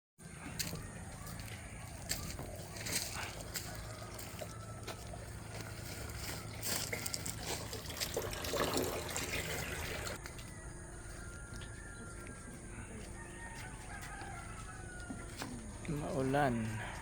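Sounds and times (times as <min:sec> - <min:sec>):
rainwater trickling and dripping: 0:02.1 - 0:10.2
water splashing: 0:06.4 - 0:10.2.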